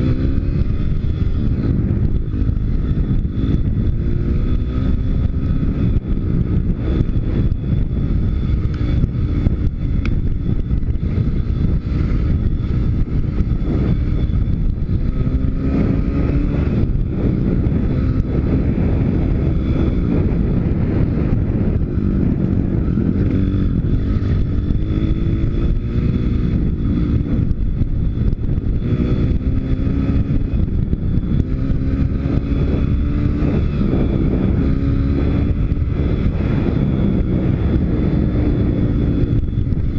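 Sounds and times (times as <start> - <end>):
motorbike engine revving: 0.0 - 39.9
wind rumbling on microphone: 0.0 - 39.9.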